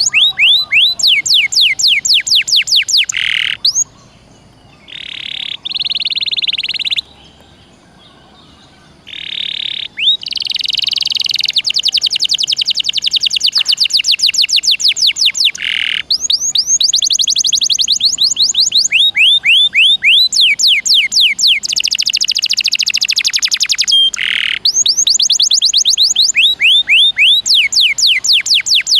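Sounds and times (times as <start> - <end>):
canary singing: 0.0 - 28.9.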